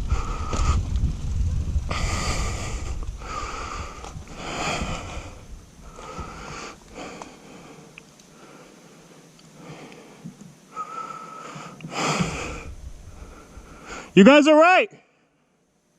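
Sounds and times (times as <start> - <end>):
person breathing heavily: 0.0 - 0.9, 1.9 - 14.2
wind rumbling on microphone: 0.0 - 7.2, 12.0 - 14.2.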